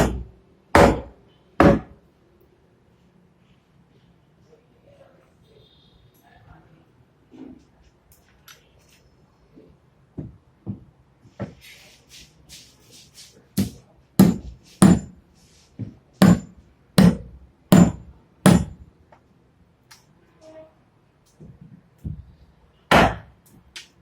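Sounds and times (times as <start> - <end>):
hammer striking with metallic ring: 0.0 - 1.9, 13.6 - 15.2, 16.2 - 18.8.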